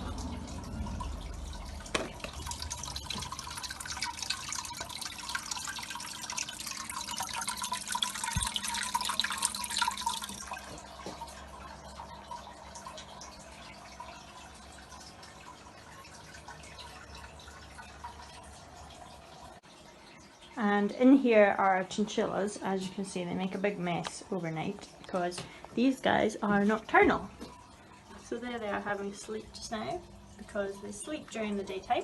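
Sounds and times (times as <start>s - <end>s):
water trickling in fish tank: 0.0s - 32.0s.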